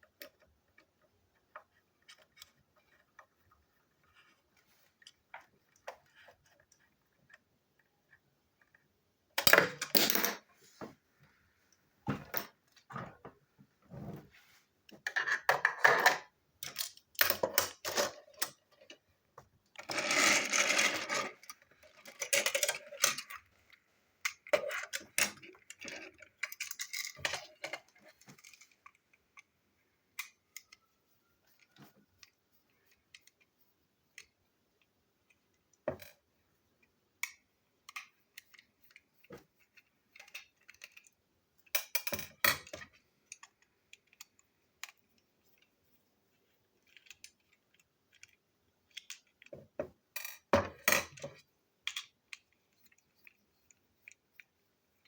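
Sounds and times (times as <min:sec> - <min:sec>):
plastic toy parts clicking: 0:19.8 - 0:30.9, 0:36.8 - 0:45.7, 0:46.8 - 0:49.5, 0:50.1 - 0:55.0.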